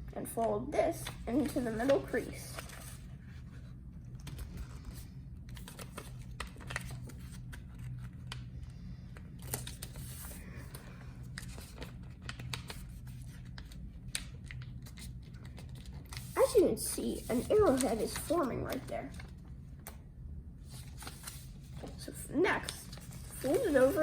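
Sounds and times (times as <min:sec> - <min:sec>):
low steady hum: 0:00.0 - 0:24.0
paper being folded and creased: 0:01.0 - 0:08.5, 0:09.4 - 0:20.0, 0:20.7 - 0:24.0.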